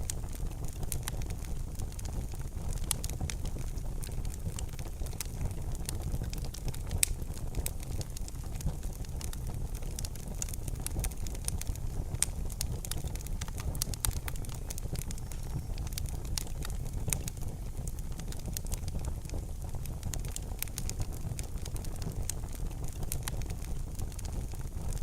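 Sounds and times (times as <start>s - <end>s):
low rumble of flames: 0.0s - 25.0s
wood fire crackling: 0.0s - 25.0s.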